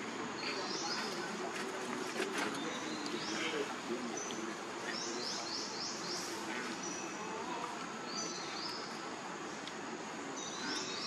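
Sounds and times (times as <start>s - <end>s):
birds chirping: 0.0s - 11.0s
steady background hiss: 0.0s - 11.0s.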